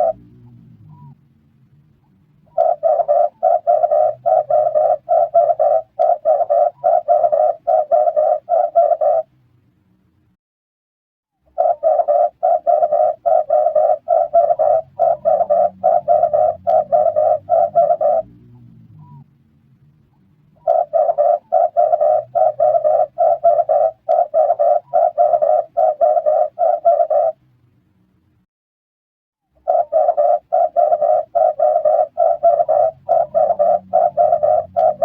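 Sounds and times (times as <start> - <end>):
dove cooing: 0.0 - 1.2, 2.4 - 9.3, 11.5 - 19.2, 20.6 - 27.4, 29.6 - 35.0.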